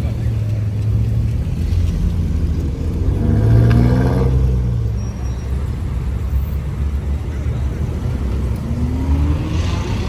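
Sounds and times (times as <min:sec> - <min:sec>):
car engines rumbling: 0:00.0 - 0:10.0
engine revving: 0:01.6 - 0:04.8, 0:08.5 - 0:10.0.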